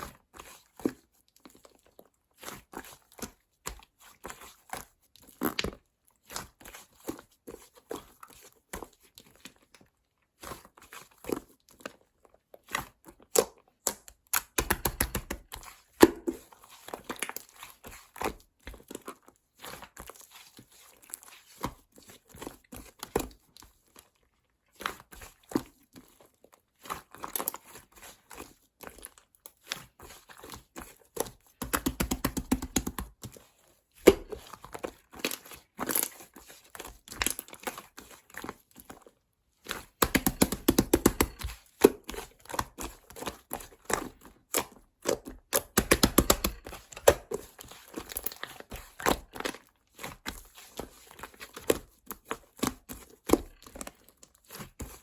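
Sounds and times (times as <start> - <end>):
slime squished by hand: 39.7 - 55.0.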